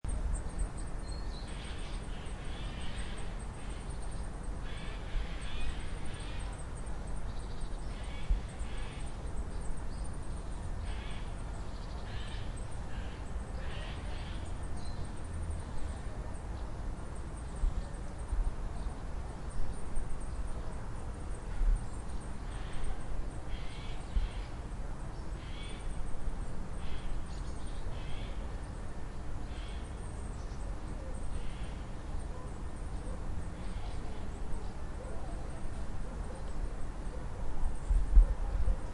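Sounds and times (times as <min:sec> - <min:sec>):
birds calling: 0:21.3 - 0:37.9.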